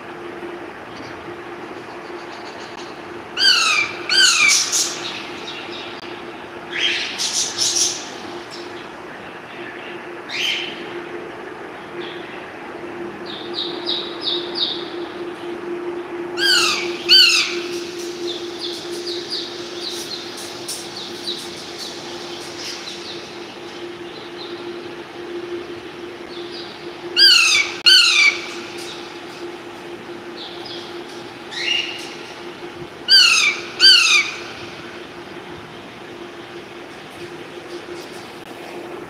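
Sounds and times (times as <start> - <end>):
steady low hum: 0.0 - 39.0
parrot squawking: 3.4 - 5.0, 16.4 - 17.6, 27.2 - 28.4, 33.1 - 34.4.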